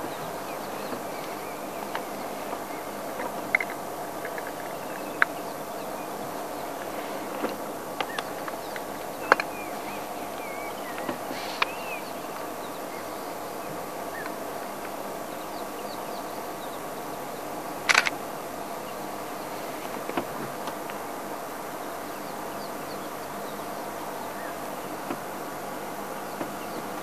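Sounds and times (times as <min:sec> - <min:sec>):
birds chirping and whistling: 0:00.0 - 0:14.4
steady background hum: 0:00.0 - 0:27.0
sharp clicks: 0:17.9 - 0:18.2.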